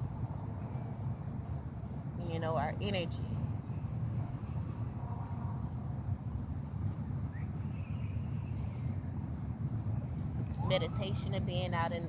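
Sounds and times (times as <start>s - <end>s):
low outdoor rumble: 0.0s - 12.0s
faint rising chirp: 3.5s - 9.0s.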